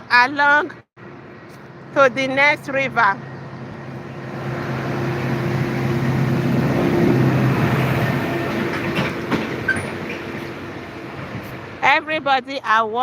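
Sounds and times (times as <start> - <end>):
vehicle engine hum: 0.9 - 12.8
rushing noise: 3.2 - 11.9.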